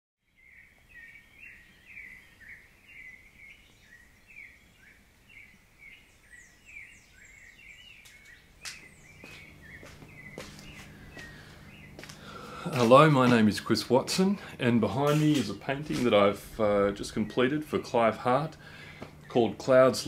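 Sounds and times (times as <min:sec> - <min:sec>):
bird chirping: 0:00.2 - 0:20.0
low hum: 0:08.4 - 0:14.8.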